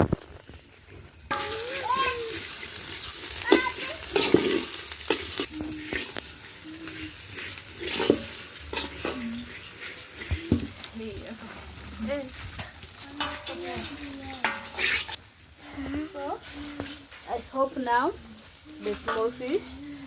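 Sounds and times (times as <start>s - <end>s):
fish sizzling in oil: 0.0s - 20.0s
spoon scraping a pot: 6.8s - 10.5s, 13.2s - 15.2s.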